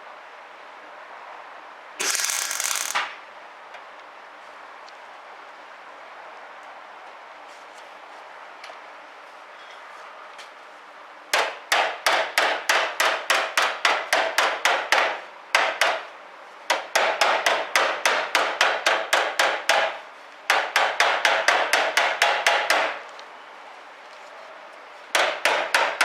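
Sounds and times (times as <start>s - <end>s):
hammer blows on sheet steel: 11.3s - 16.1s, 16.7s - 23.0s, 25.1s - 26.0s.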